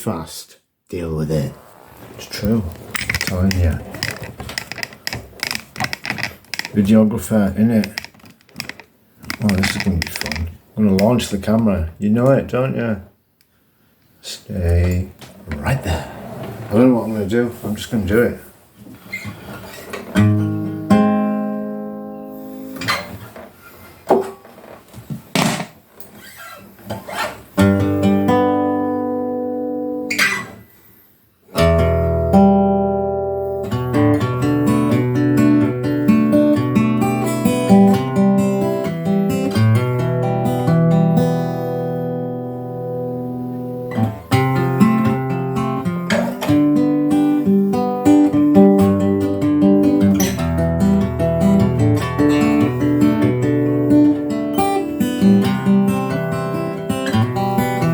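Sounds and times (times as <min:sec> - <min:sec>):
acoustic guitar strumming chords: 0:20.1 - 0:23.1, 0:27.6 - 0:30.4, 0:31.6 - 0:57.9.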